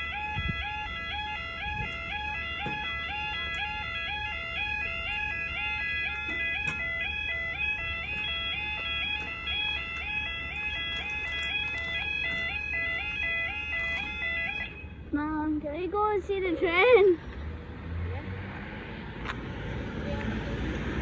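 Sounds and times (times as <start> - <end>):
level crossing alarm two-tone warble: 0.0 - 15.0.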